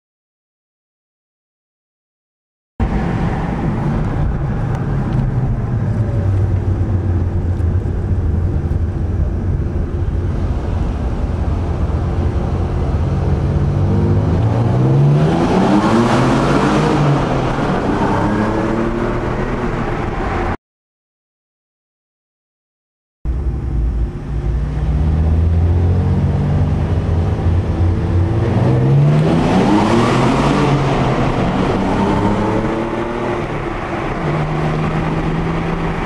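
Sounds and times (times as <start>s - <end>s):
car engine accelerating in tunnel: 2.8s - 20.6s, 23.3s - 36.0s.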